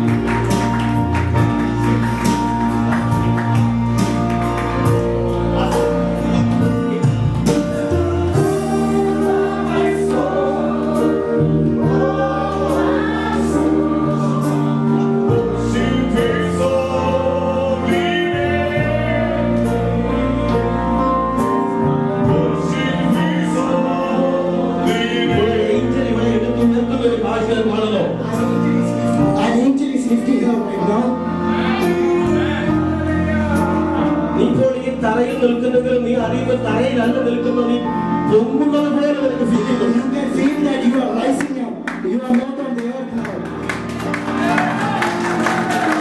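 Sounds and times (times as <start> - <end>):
group of voices singing: 0.0 - 29.5, 30.6 - 34.7, 44.2 - 46.0
bass notes: 0.0 - 40.9
keyboard chords: 0.0 - 46.0.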